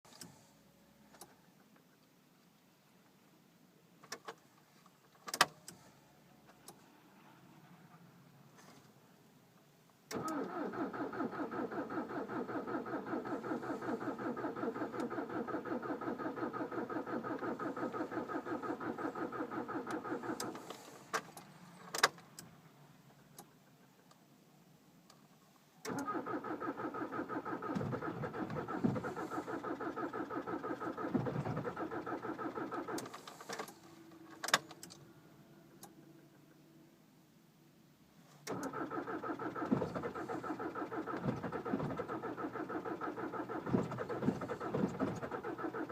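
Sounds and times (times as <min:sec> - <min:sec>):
starter cranking engine: 0:10.1 - 0:21.0, 0:25.9 - 0:33.8, 0:38.5 - 0:45.9.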